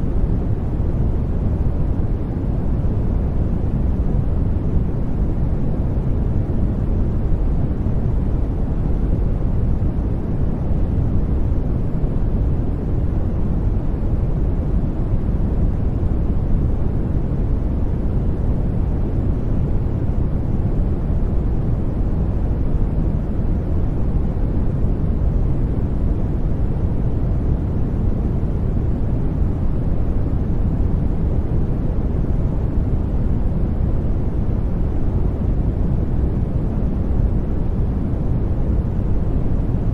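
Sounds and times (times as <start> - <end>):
deep rumbling white noise hiss: 0.0 - 39.9.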